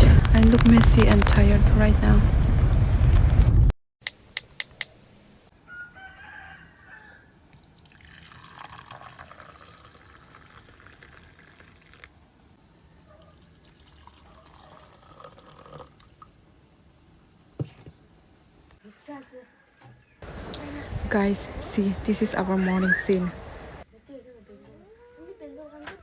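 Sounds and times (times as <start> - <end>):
faint rooster crowing: 5.6 - 7.4, 18.9 - 20.1.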